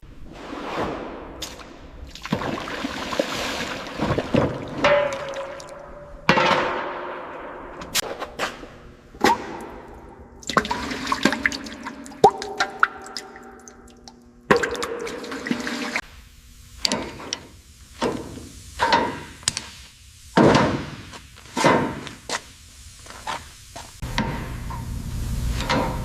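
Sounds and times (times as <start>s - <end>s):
liquid gushing and splashing: 2.1s - 5.9s, 10.4s - 16.0s
sharp drips: 2.1s - 5.9s, 9.5s - 16.0s.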